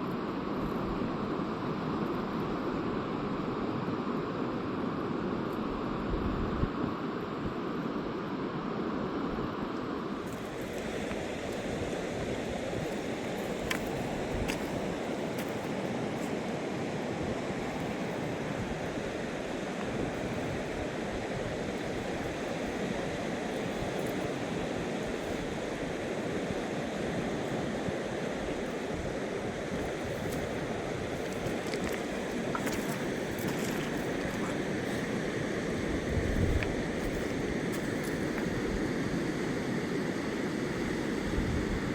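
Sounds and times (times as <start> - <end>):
river rushing: 10.1 - 40.2.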